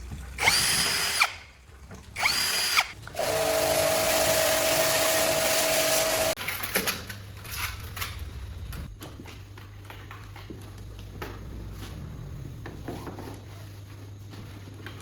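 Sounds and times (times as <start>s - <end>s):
electric drill whining: 2.2s - 6.4s.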